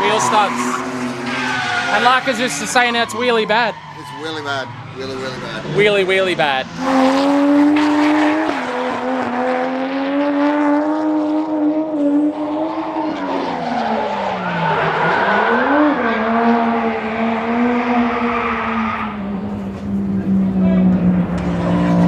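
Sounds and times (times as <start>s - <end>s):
tyre squeal: 0.0s - 5.8s
car engine at high revs: 0.0s - 22.0s.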